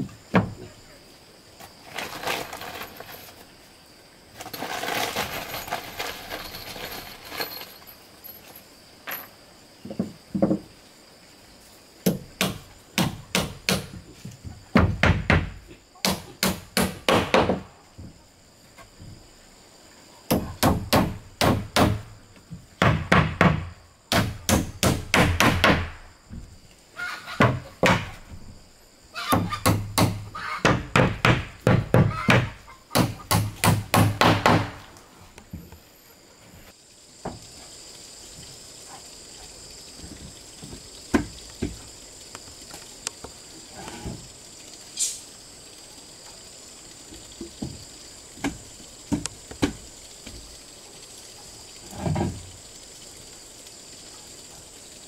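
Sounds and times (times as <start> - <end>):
steady high hiss: 0.0 - 55.0
hammer striking wood: 12.0 - 14.0, 14.8 - 17.7, 20.3 - 22.1, 22.8 - 26.0, 29.3 - 34.8.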